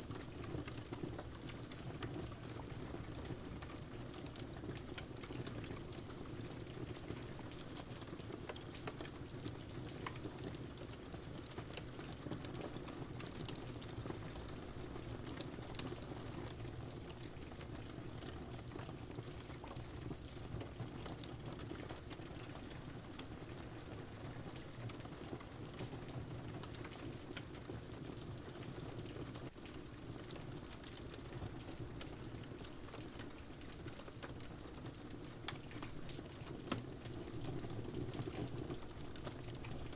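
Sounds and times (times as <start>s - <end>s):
steady rain patter: 0.0s - 39.9s.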